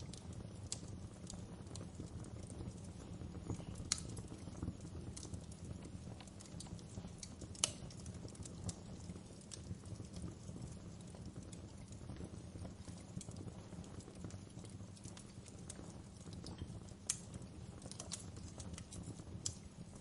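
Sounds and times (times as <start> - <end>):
fire crackling in fireplace: 0.0 - 20.0
sharp pops of fire: 0.0 - 20.0.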